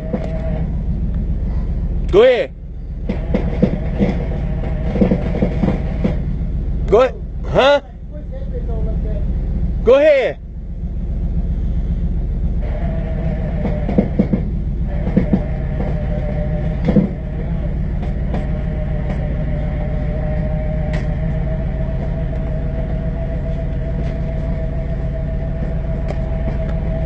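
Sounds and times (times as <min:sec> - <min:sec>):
vehicle engine droning: 0:00.0 - 0:27.0.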